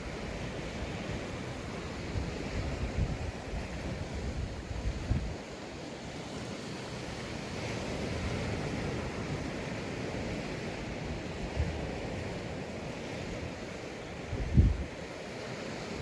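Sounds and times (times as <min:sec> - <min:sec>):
wind gust on microphone: 0:00.0 - 0:05.6, 0:07.1 - 0:16.0
surf washing onto beach: 0:00.0 - 0:16.0.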